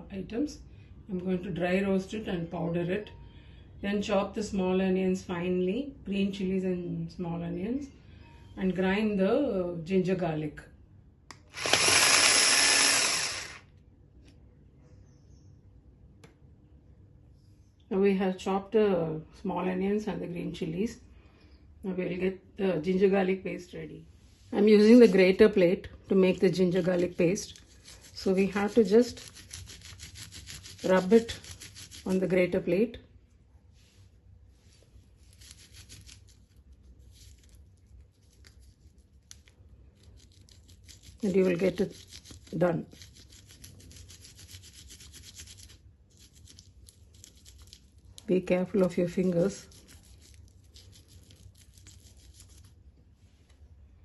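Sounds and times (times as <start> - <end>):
electric chopper running: 11.5 - 13.6
grater rasping: 11.6 - 13.6, 26.8 - 32.3, 40.1 - 47.8.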